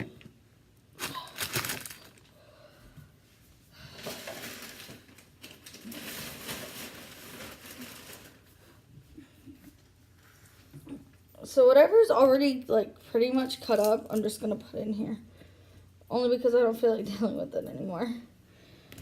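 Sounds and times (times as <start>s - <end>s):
rustling and crinkling: 1.0s - 2.3s, 3.4s - 11.2s.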